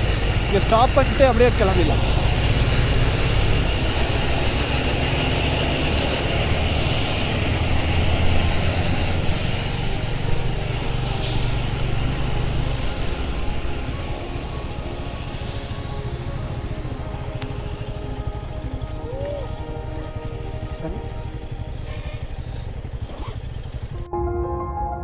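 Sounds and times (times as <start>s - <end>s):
motorcycle engine running: 0.0s - 24.1s.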